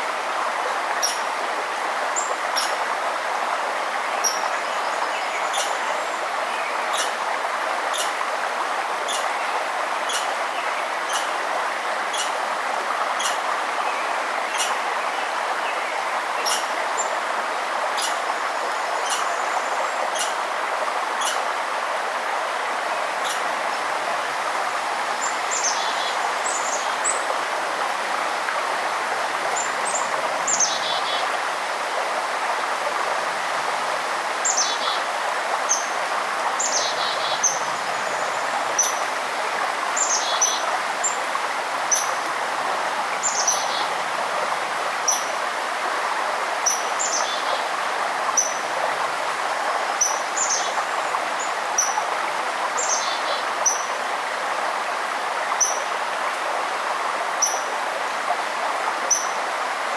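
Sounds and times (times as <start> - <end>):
forest stream rushing: 0.0 - 59.9
birds chirping: 9.1 - 11.4, 18.0 - 20.4.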